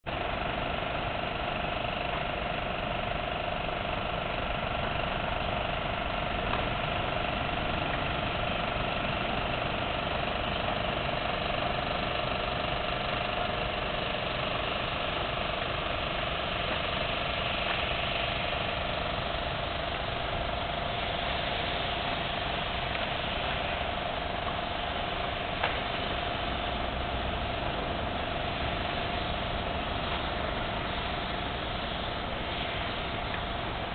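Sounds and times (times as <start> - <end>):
engine drone: 0.0 - 33.9.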